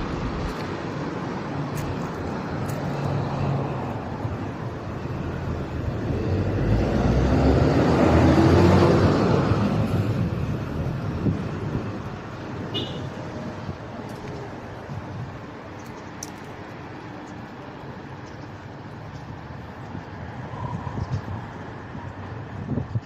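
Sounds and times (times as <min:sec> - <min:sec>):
vehicle passing close by: 0:00.0 - 0:13.6
road traffic noise: 0:00.0 - 0:23.0.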